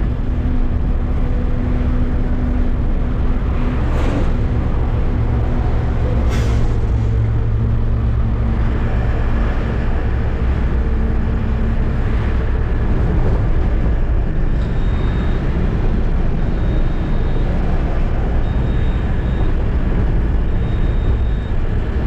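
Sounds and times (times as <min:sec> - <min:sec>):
road noise: 0:00.0 - 0:22.0
truck diesel engine running: 0:00.0 - 0:22.0.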